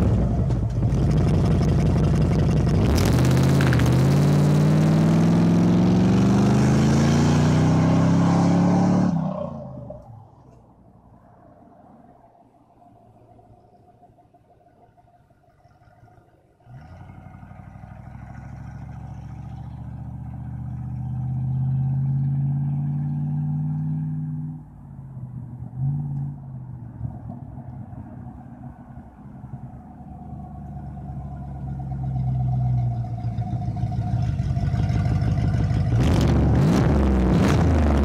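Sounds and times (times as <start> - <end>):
bus exhaust revving: 0.0 - 10.0, 30.1 - 38.0.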